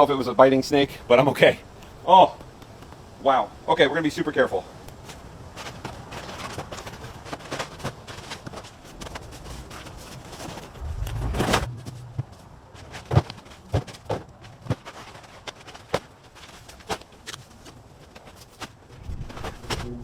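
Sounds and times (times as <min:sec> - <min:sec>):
low rumble: 0:10.5 - 0:13.0.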